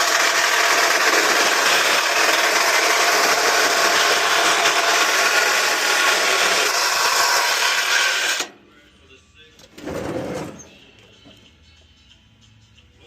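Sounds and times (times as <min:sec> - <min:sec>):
power saw cutting metal: 0:00.0 - 0:08.5.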